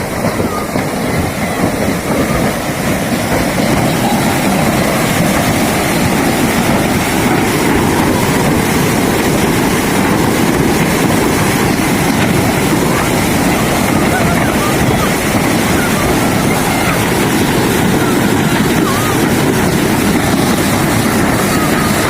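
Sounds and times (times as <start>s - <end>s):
loud steady rushing noise: 0.0s - 22.0s.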